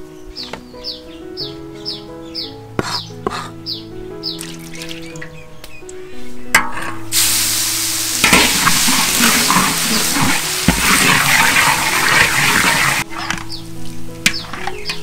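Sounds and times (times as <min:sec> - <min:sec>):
food sizzling in a hot pan: 0:07.1 - 0:13.2.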